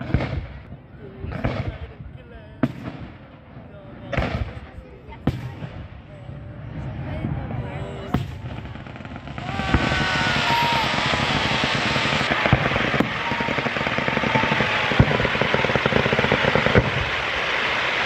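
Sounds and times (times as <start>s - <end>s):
firework bangs: 0.0s - 2.0s, 2.6s - 18.0s
fireworks crackling: 0.0s - 18.0s
firework whistles: 8.2s - 18.0s.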